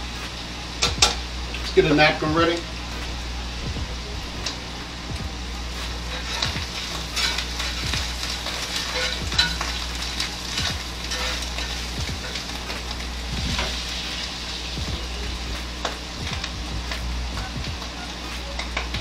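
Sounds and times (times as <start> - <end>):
food sizzling in a pan: 0.0 - 19.0
low hum: 0.0 - 19.0.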